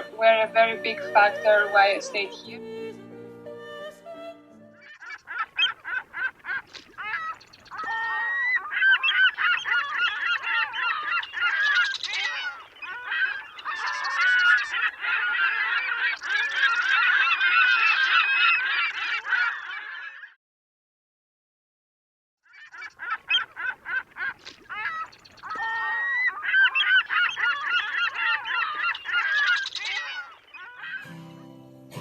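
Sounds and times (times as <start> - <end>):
flock of birds calling: 4.8 - 20.4, 22.5 - 31.2.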